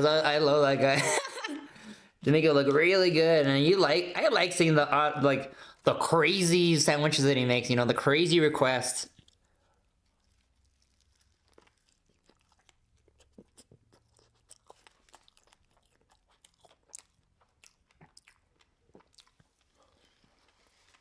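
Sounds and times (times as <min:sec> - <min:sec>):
chewing crispy food: 0:09.1 - 0:21.0.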